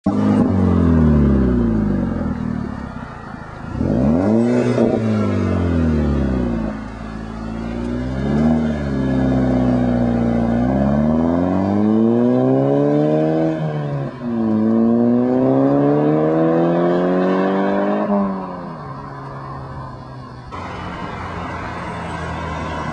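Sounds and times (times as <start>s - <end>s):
car engine revving: 0.0s - 22.9s.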